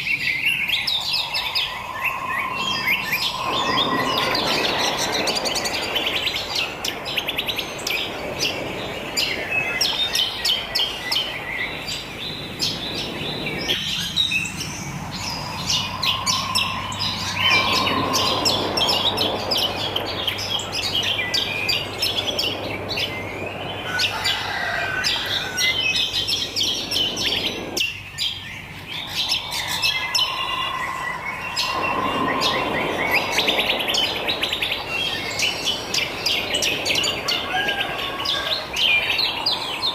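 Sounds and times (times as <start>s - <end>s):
birds chirping and twittering: 0.0s - 39.9s.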